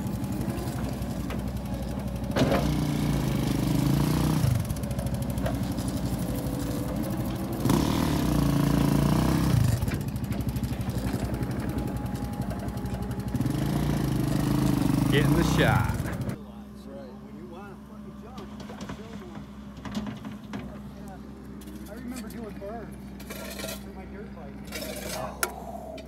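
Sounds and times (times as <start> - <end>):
small motorbike engine revving: 0.0 - 16.4.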